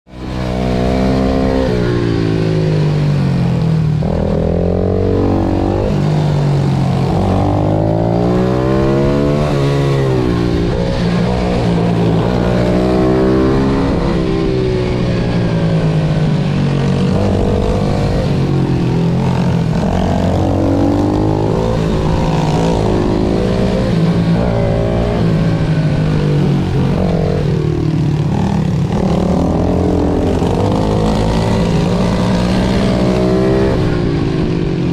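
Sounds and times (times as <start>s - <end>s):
pit bike engines revving: 0.2s - 34.9s.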